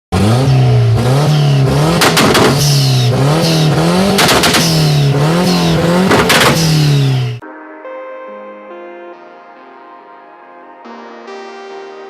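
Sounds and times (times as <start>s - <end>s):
car engine revving: 0.1s - 7.4s
sharp exhaust cracks: 0.4s - 7.4s.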